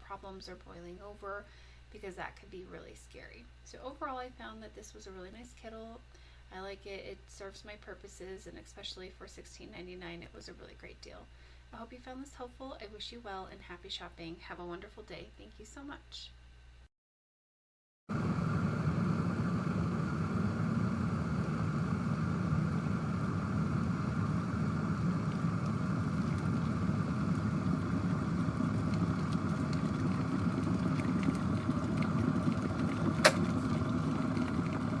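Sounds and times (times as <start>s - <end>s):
electric kettle boiling: 18.1s - 35.0s
kettle switch click: 33.2s - 33.6s.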